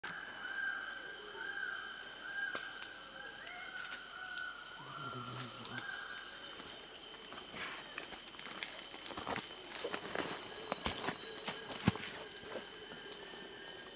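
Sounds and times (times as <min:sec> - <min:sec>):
insects droning: 0:00.0 - 0:13.9.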